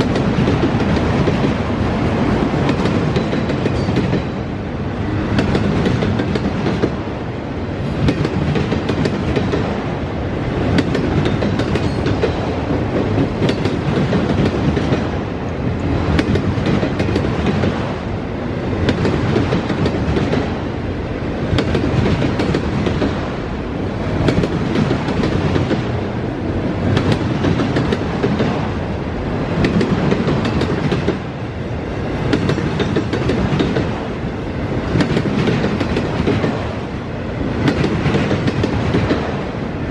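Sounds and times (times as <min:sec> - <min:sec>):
train wheels rumbling on rail: 0:00.0 - 0:39.9
wheels clicking over rail joints: 0:10.6 - 0:17.8.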